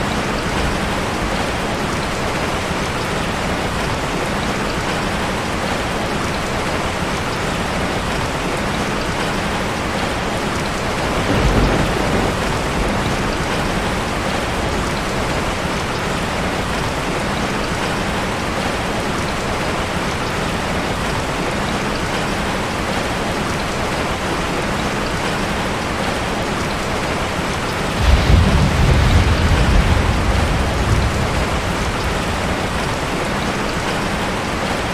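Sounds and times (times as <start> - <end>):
rain on a metal roof: 0.0 - 34.9
thunder rumbling: 10.7 - 16.9, 27.8 - 34.8.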